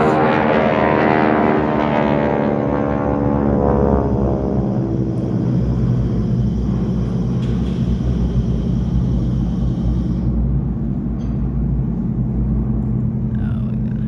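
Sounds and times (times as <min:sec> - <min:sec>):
aircraft engine droning: 0:00.0 - 0:14.0.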